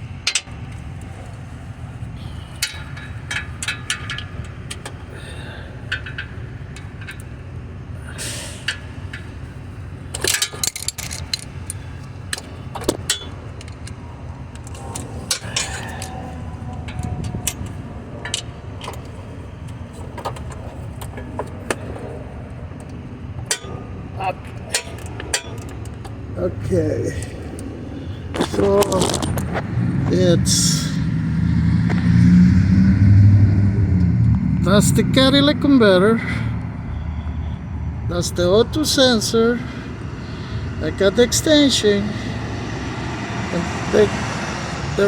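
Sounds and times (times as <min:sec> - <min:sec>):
steady low hum: 0:00.0 - 0:45.0
metal tools clinking: 0:02.3 - 0:07.4, 0:10.1 - 0:19.2, 0:23.4 - 0:29.6.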